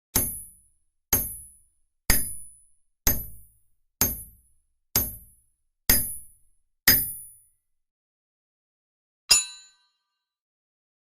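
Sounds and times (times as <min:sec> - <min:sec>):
hammer striking an anvil: 0:00.1 - 0:02.5, 0:03.1 - 0:03.4, 0:04.0 - 0:04.4, 0:05.0 - 0:05.3, 0:05.9 - 0:07.4, 0:09.3 - 0:10.0.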